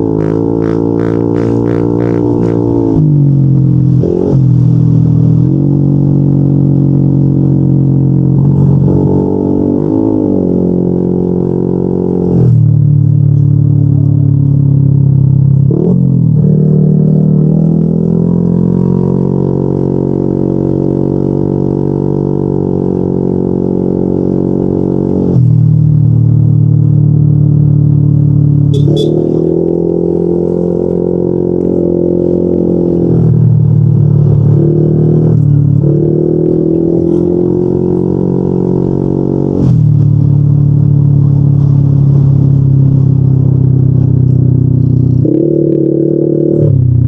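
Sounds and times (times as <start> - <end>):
scooter engine droning: 0.0 - 5.7.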